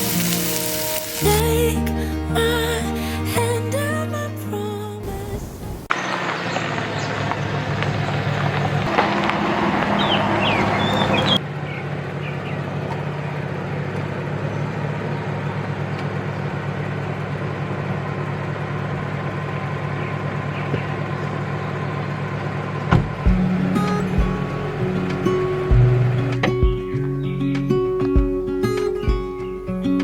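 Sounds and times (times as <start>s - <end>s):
high hiss: 0.0s - 1.7s, 5.0s - 5.9s
vehicle engine humming: 0.0s - 29.7s.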